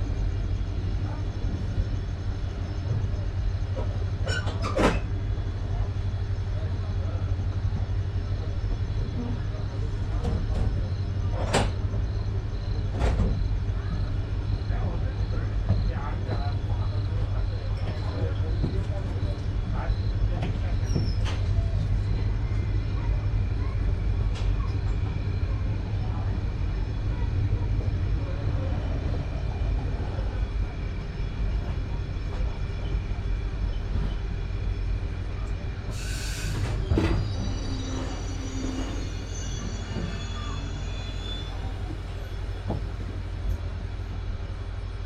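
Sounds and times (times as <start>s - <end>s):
train coach rumble: 0.0s - 45.0s
burst of hiss: 35.9s - 36.8s
wheel squeal: 36.0s - 42.5s.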